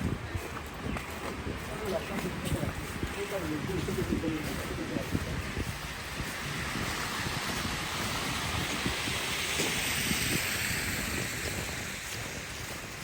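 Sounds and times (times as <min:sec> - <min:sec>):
wind buffeting microphone: 0:00.0 - 0:13.0
traffic hiss: 0:03.0 - 0:13.0.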